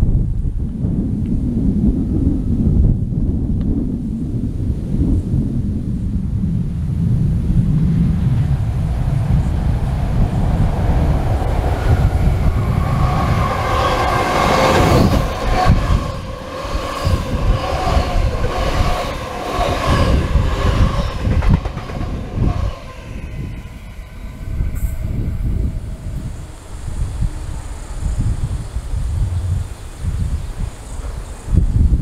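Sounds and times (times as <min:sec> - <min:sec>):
wheel-on-rail rumble: 0:05.7 - 0:32.0
wheels clicking over rail joints: 0:13.2 - 0:22.8.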